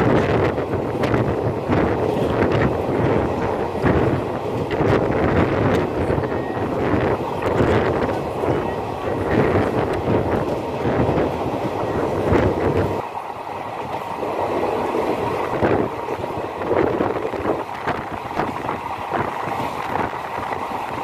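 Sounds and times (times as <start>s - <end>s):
wheels clattering over rail joints: 0.0s - 13.0s
train rumble: 0.0s - 21.0s
wind buffeting microphone: 0.0s - 21.0s.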